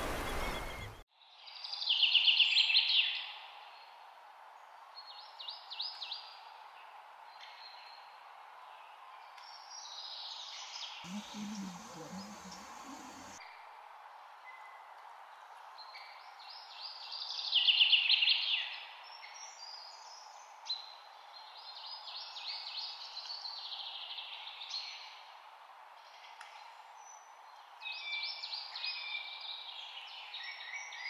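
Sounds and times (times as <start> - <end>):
birds chirping in trills: 0.0 - 1.0, 11.1 - 13.4
steady background hiss: 11.1 - 13.4.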